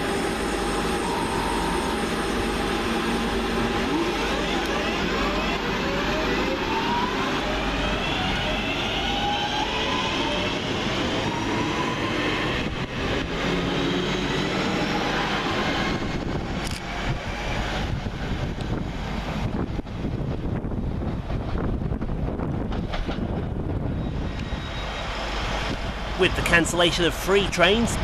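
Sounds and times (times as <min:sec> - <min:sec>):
electric train motors whining: 0:00.0 - 0:18.9
wind on microphone: 0:15.7 - 0:24.7.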